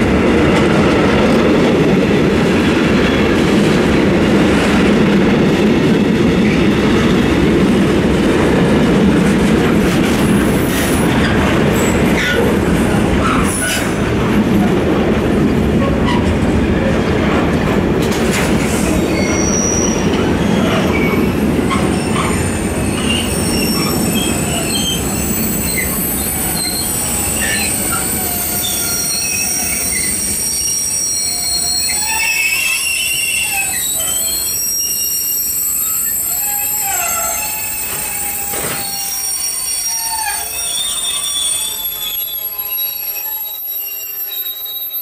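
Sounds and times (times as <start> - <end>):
freight train rumble: 0.0 - 44.6
train wheels squealing: 9.9 - 12.6, 13.2 - 14.0, 18.3 - 45.0.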